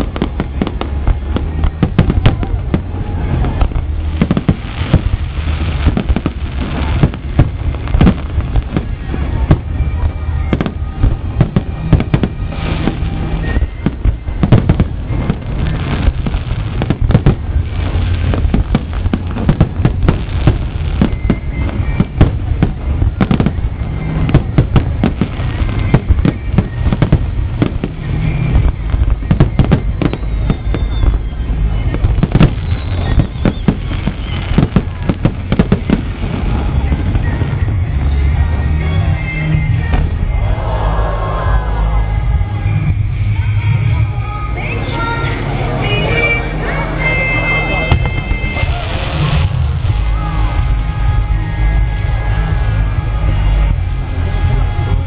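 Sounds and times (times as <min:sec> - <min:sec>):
deep rumbling: 0:00.0 - 0:55.0
fireworks bangs and crackling: 0:00.0 - 0:55.0.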